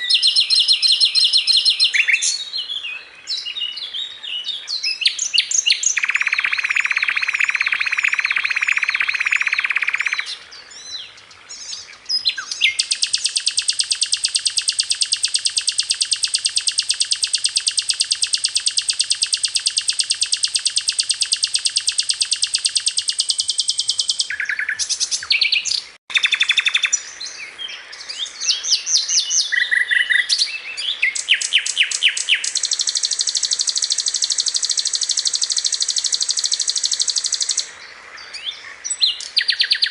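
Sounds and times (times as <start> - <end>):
sharp bird chips: 0.0 - 2.4, 5.0 - 10.4, 12.2 - 27.0, 31.0 - 37.7
flycatcher trilling song: 0.0 - 3.8, 4.7 - 39.9.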